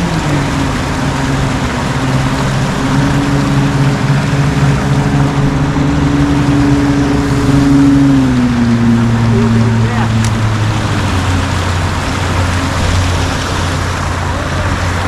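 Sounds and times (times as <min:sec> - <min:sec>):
motor droning hum: 0:00.0 - 0:15.0
rushing noise: 0:00.0 - 0:15.0.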